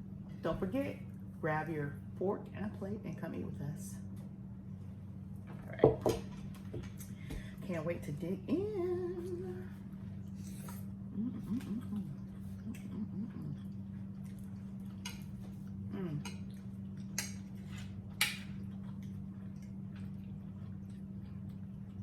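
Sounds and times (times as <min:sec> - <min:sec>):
steady low hum: 0:00.0 - 0:22.0
cutlery clicking against plates: 0:17.2 - 0:18.5.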